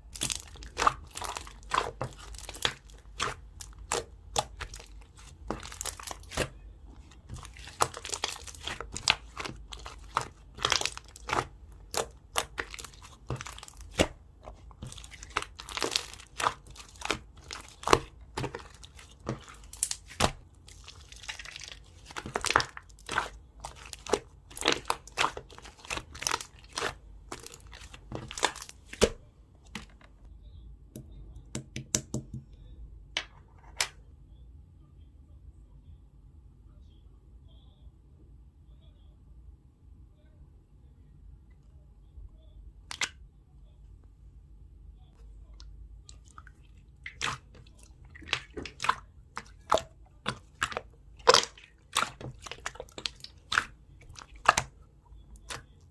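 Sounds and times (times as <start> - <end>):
slime squished by hand: 0.0 - 29.9, 46.0 - 55.9.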